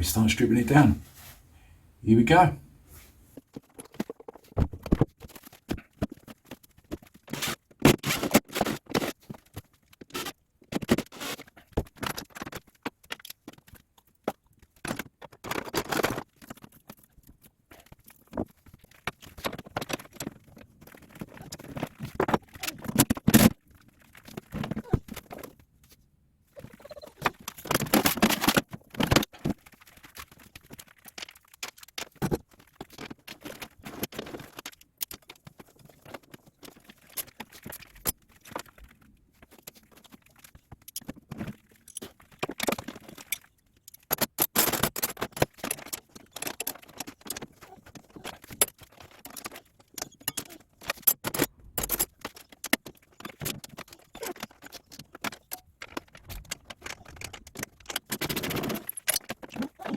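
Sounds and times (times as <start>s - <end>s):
hand tools and metal parts clinking: 39.4s - 59.9s.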